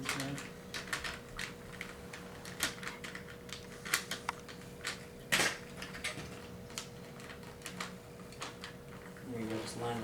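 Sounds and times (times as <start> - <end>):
plastic parts clicking and clattering: 0.0 - 9.6.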